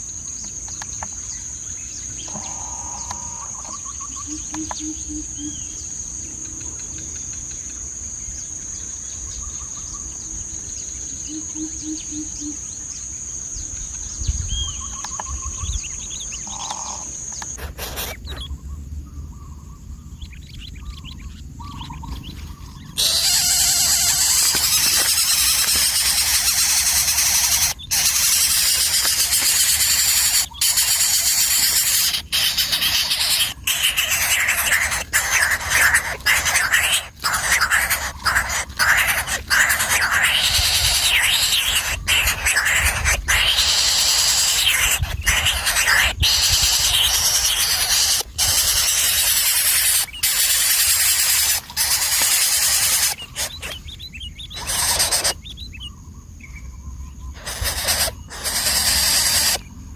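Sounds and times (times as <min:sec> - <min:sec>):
bird calls: 0:00.0 - 0:59.9
high insect whine: 0:00.0 - 0:59.9
loud even hiss: 0:23.0 - 0:53.6, 0:57.4 - 0:59.6.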